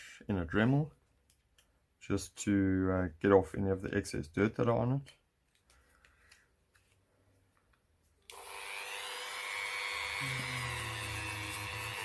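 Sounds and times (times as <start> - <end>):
rotary tool whining: 8.3 - 12.0.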